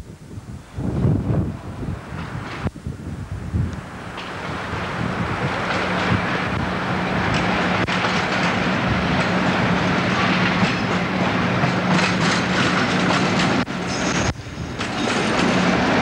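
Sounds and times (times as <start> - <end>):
diesel locomotive engine drone: 0.0 - 16.0
wagon wheels clattering over rail joints: 4.1 - 16.0.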